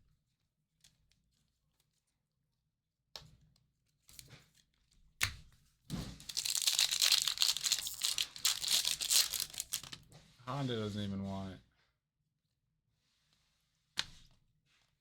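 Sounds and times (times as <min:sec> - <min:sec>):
wrapper tearing and crinkling: 0:06.2 - 0:10.0.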